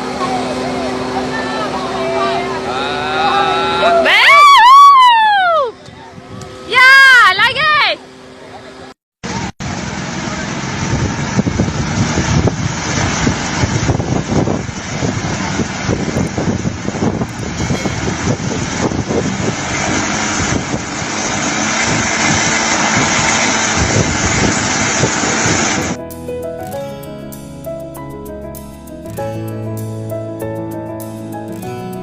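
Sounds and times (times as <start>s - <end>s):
aircraft engine running loudly: 0.0s - 4.0s, 8.0s - 26.0s.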